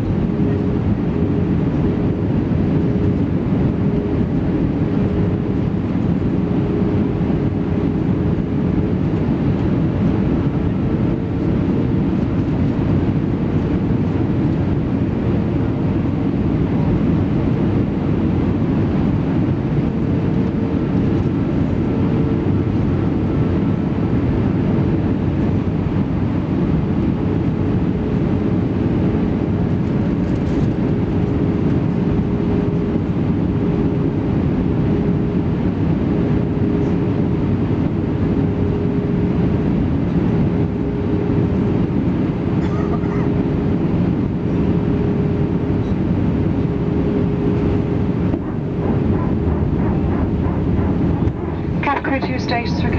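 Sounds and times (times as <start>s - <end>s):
airplane engine hum: 0.0s - 52.9s
rushing airflow: 43.5s - 52.9s.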